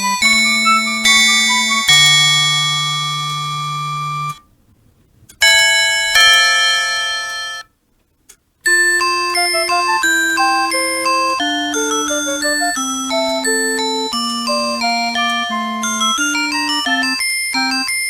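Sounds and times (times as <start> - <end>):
electronic chords from small speaker: 0.0 - 4.4, 8.7 - 17.9
quick electronic melody: 8.7 - 17.8.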